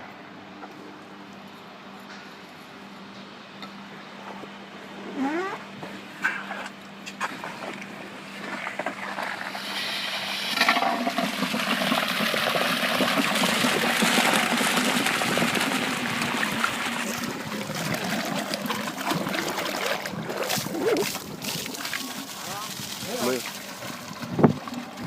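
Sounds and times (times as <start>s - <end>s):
water gushing from pump: 7.2s - 25.0s.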